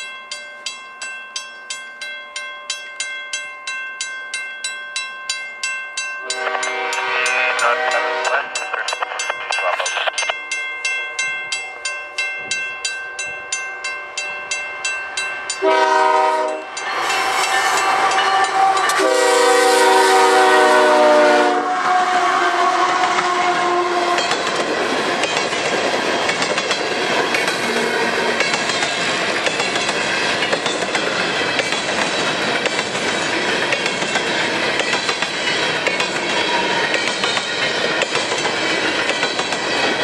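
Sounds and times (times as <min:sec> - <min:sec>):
level-crossing bell ringing: 0:00.0 - 0:15.8
locomotive air horn: 0:06.2 - 0:08.6, 0:15.6 - 0:24.3
freight train rumbling past: 0:06.2 - 0:10.3, 0:14.1 - 0:40.0.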